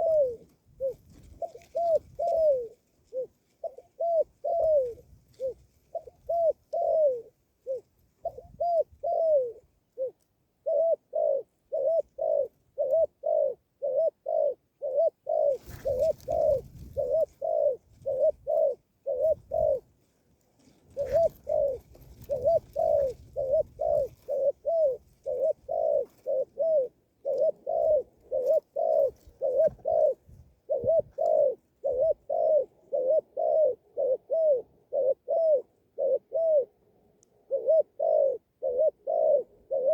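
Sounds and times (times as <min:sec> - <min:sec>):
rustling noise: 0:00.0 - 0:03.9, 0:15.5 - 0:26.6
bird hooting: 0:00.0 - 0:19.9, 0:20.9 - 0:39.9.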